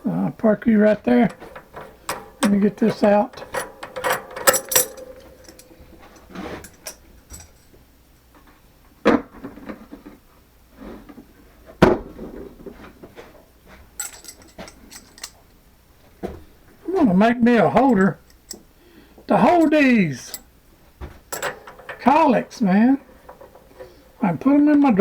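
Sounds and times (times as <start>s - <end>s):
metallic knocks and clicks: 0.9s - 7.7s, 14.0s - 15.4s, 21.3s - 24.2s.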